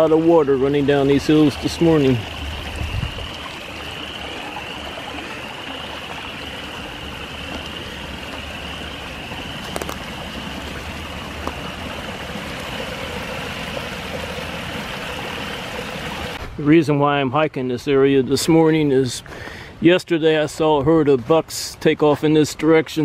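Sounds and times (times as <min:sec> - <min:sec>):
distant frogs peeping: 0:00.0 - 0:16.4
stream rushing: 0:00.0 - 0:16.6.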